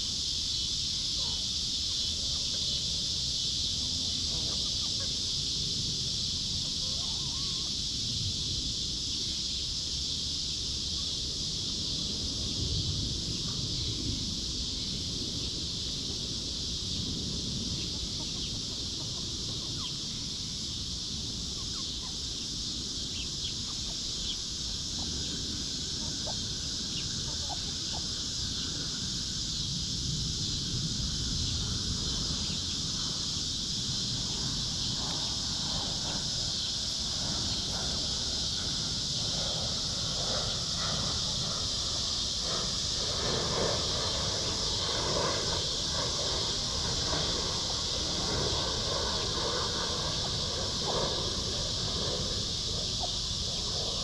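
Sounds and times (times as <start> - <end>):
steady high hiss: 0.0 - 54.0
low wind rumble: 7.7 - 54.0.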